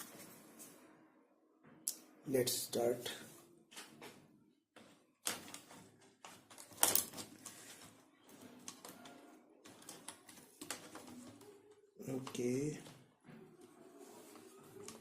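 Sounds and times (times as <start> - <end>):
plastic laptop parts clicking: 5.2 - 7.8, 8.4 - 11.5.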